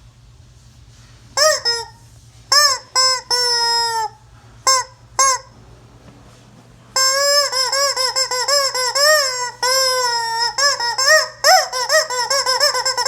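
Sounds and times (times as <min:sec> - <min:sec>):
rubber chicken toy squawking: 0:01.4 - 0:05.6, 0:07.0 - 0:13.0.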